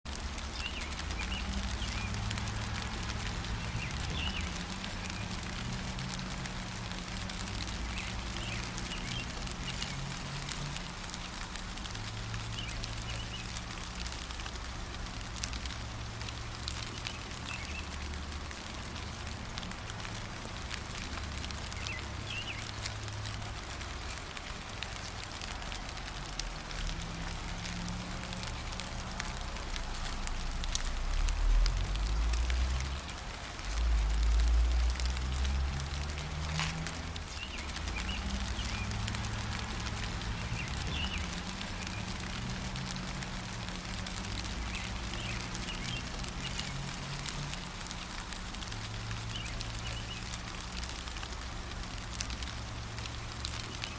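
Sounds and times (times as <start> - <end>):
light rain pattering: 0.0 - 53.9
bird chirps: 3.6 - 5.4, 12.5 - 13.5, 21.7 - 22.8, 44.6 - 46.8.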